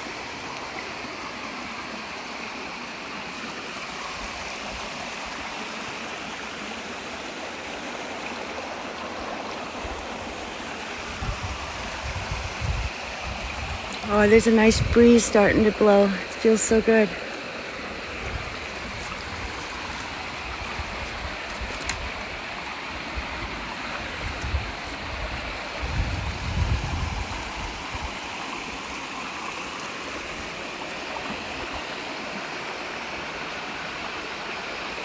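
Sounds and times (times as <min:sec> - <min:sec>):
brook running: 0:00.0 - 0:35.0
wind buffeting microphone: 0:09.8 - 0:15.8, 0:18.2 - 0:28.3.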